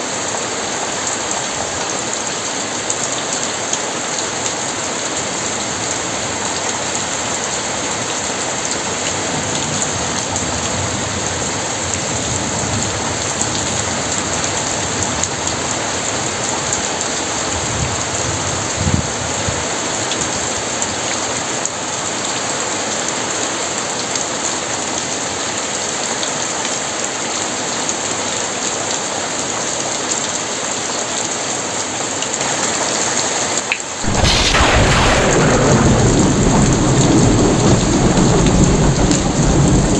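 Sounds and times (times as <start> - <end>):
heavy rain pouring: 0.0 - 39.9
thunderclap with deep rumble: 8.9 - 20.6, 34.1 - 39.9.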